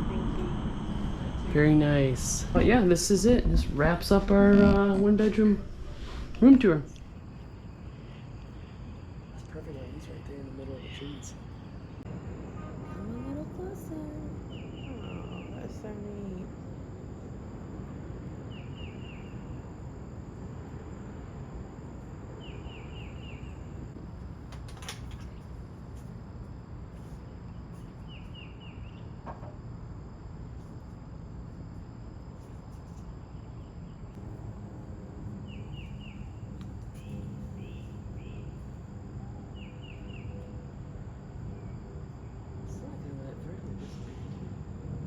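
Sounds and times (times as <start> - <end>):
faint high drone: 0.0 - 24.2, 34.1 - 45.0
bird chirping: 35.4 - 38.7, 39.4 - 40.6.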